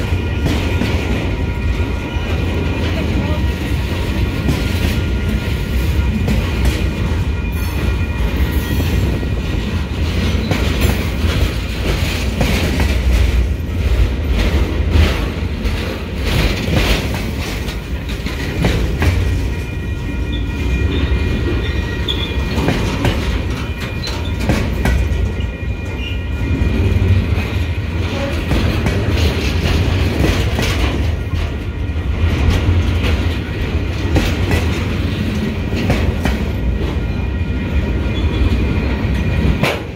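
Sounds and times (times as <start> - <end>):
train wheels rumbling on rail: 0.0 - 39.9
wheels clacking over track joints: 6.1 - 19.9, 20.9 - 26.2, 26.8 - 37.0.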